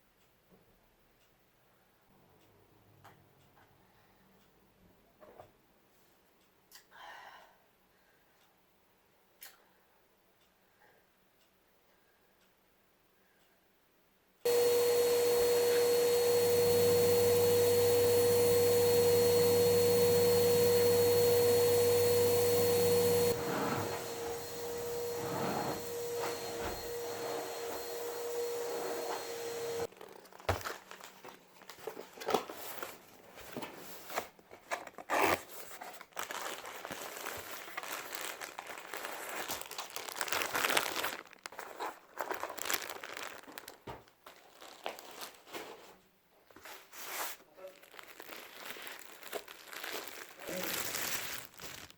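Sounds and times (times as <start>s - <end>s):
electric appliance humming and rushing: 14.5s - 29.9s
crinkling and clicking handling noises: 27.8s - 51.9s.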